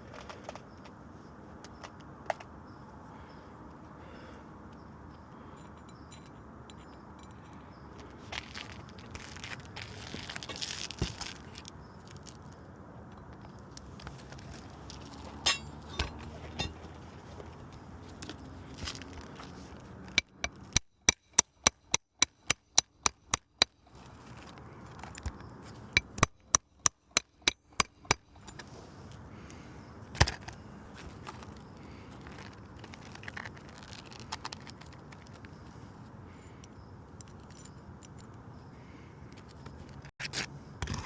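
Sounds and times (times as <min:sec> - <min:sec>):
hammer driving nails: 0:20.2 - 0:23.8.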